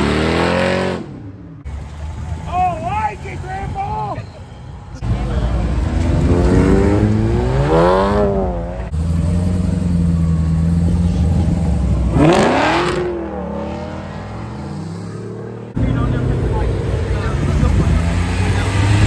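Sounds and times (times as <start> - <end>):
car engine passing and revving: 0.0 - 2.5, 5.0 - 19.0
car accelerating away: 5.0 - 19.0.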